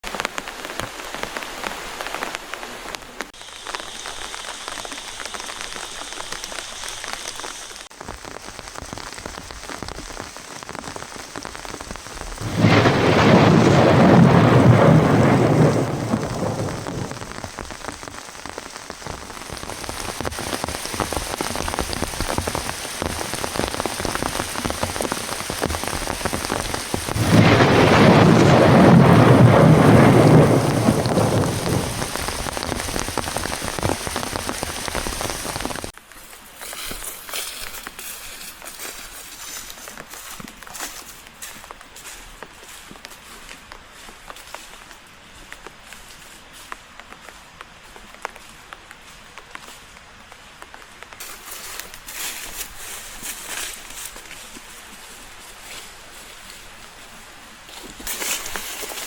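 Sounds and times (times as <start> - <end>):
heavy rain: 0.0 - 36.0
thunder rolling: 12.4 - 17.7, 20.3 - 35.9.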